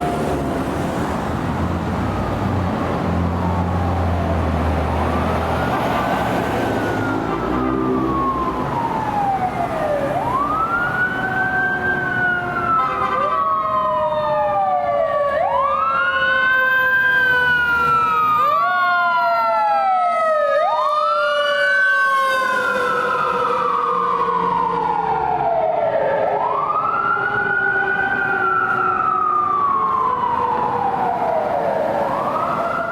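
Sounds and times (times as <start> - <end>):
truck engine rumble: 0.0 - 12.8
fire engine siren wailing: 0.0 - 32.9
second siren tone sliding down: 3.1 - 12.8.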